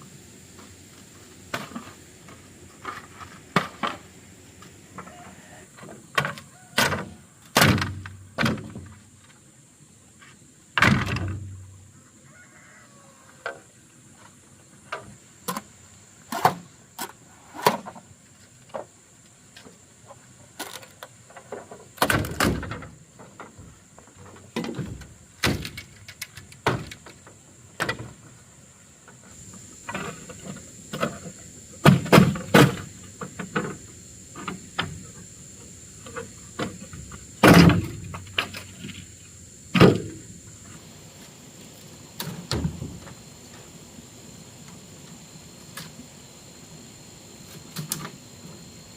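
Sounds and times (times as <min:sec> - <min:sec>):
high-pitched insect drone: 0:29.2 - 0:48.9.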